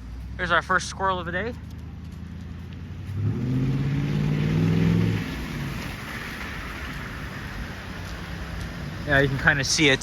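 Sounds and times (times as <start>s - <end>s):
car engine accelerating: 0.0s - 7.5s.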